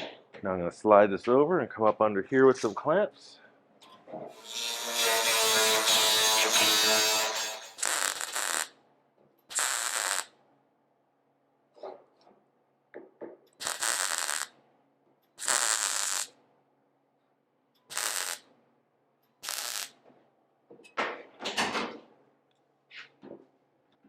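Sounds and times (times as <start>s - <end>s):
welding arc crackling: 6.0s - 8.8s, 9.5s - 10.4s, 13.6s - 14.6s, 15.4s - 16.4s, 17.9s - 18.5s, 19.4s - 20.0s.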